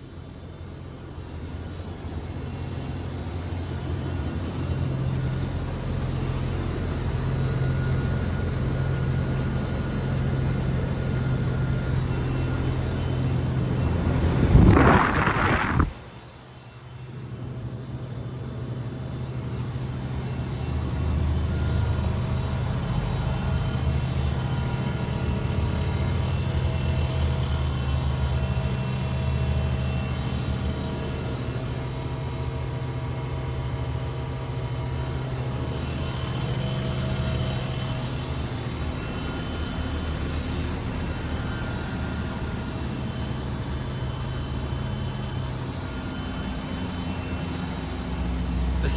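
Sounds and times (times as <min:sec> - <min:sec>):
condenser fan whoosh: 0:14.1 - 0:16.1.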